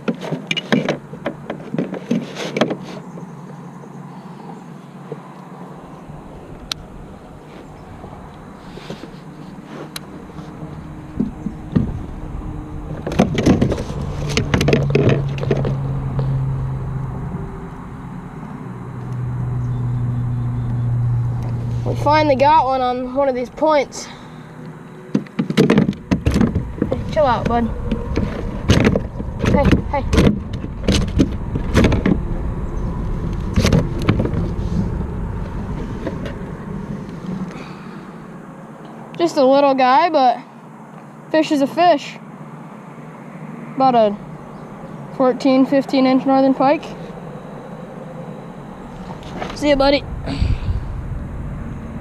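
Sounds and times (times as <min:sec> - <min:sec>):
knocks and clatter on kayak: 0:00.0 - 0:03.0, 0:13.0 - 0:15.8, 0:25.1 - 0:32.2
low engine hum: 0:02.8 - 0:52.0
wind rumble on microphone: 0:05.8 - 0:23.6, 0:25.8 - 0:37.7, 0:46.6 - 0:52.0.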